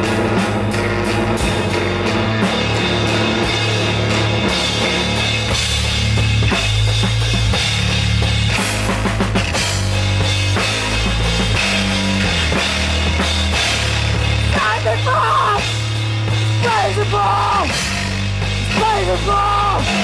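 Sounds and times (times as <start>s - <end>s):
bass guitar: 0.0s - 20.0s
drum kit with cymbals: 0.0s - 20.0s
guitar: 0.0s - 20.0s.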